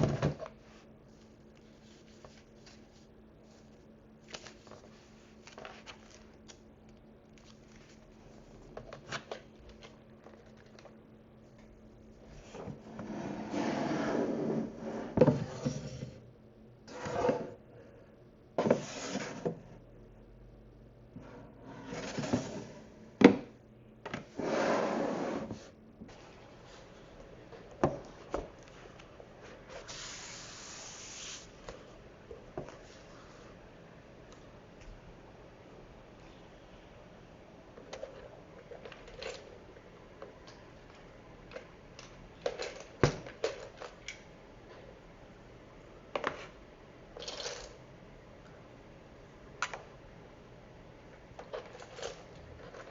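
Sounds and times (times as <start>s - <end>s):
object sliding hiss: 29.8s - 31.5s.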